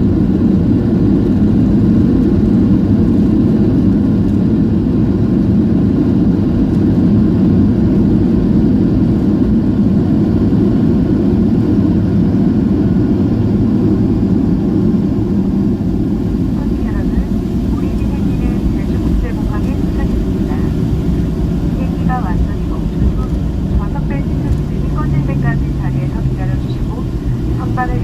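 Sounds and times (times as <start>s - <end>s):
jet cabin engine rumble: 0.0s - 28.0s.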